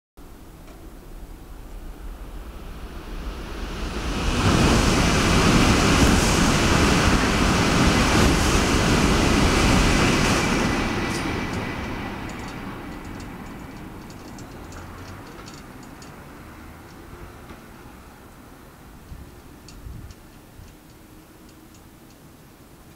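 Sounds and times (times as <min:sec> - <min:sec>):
high-speed train passing: 0:00.2 - 0:22.9.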